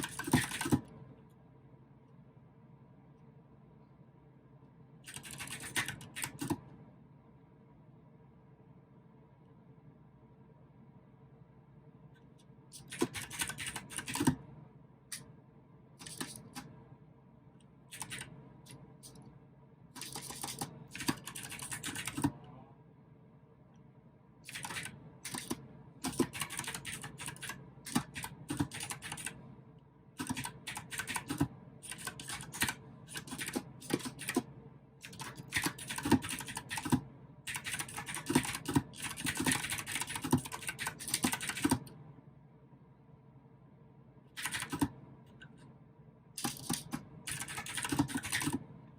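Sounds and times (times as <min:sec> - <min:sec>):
clicky mechanical keyboard typing: 0:00.0 - 0:01.0, 0:05.1 - 0:06.7, 0:12.8 - 0:14.4, 0:16.0 - 0:16.7, 0:17.9 - 0:19.2, 0:20.0 - 0:22.4, 0:24.5 - 0:29.4, 0:30.2 - 0:42.0, 0:44.4 - 0:45.6, 0:46.4 - 0:48.6.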